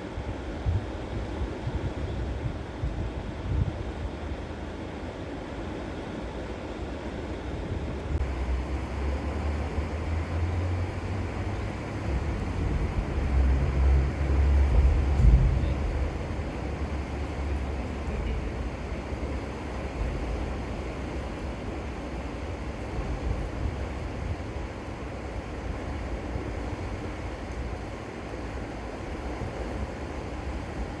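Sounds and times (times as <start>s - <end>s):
floodwater rushing: 4.0s - 31.0s
low rumble: 12.0s - 18.6s.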